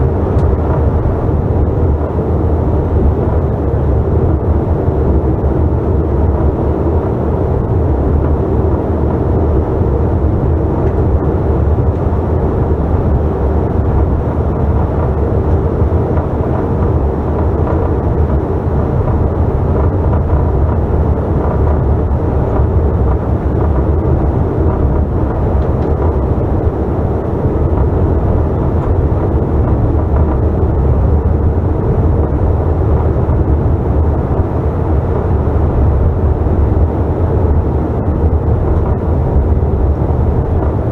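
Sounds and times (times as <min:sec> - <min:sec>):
airplane cabin engine roar: 0:00.0 - 0:40.9.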